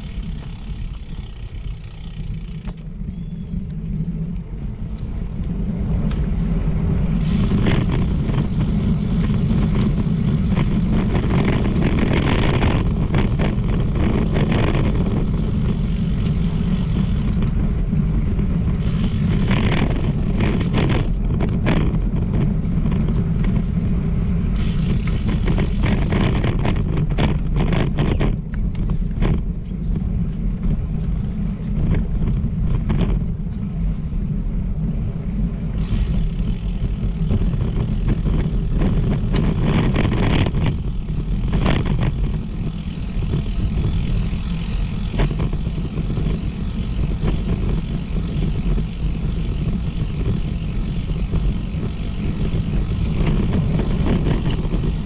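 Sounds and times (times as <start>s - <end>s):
wind buffeting microphone: 0.0s - 55.0s
short rattles and clicks: 35.8s - 55.0s.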